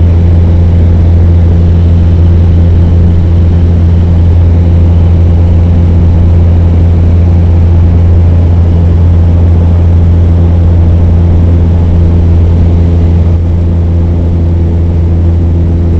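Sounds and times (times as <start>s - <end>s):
propeller plane engine drone: 0.0s - 15.9s.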